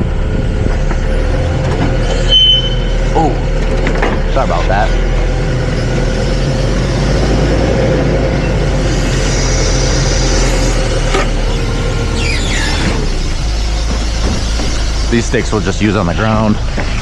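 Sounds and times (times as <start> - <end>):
forklift engine running: 0.0 - 17.0
high whine: 0.0 - 17.0
short falling squeal: 2.0 - 3.1, 8.4 - 15.5.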